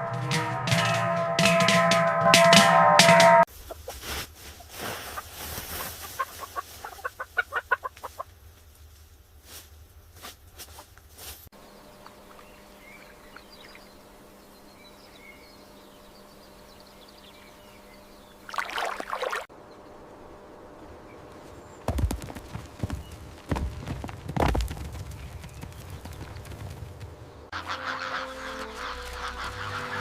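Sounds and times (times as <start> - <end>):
chickens clucking: 3.1 - 8.3, 27.5 - 30.0.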